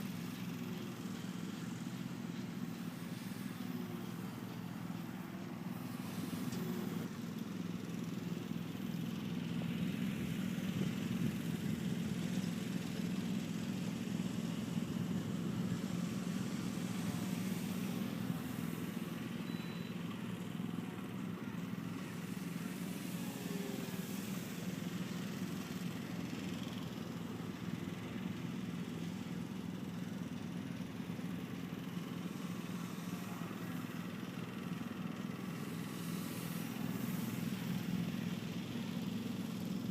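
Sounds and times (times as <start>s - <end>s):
model plane motor droning: 14.5s - 26.8s, 32.0s - 39.9s.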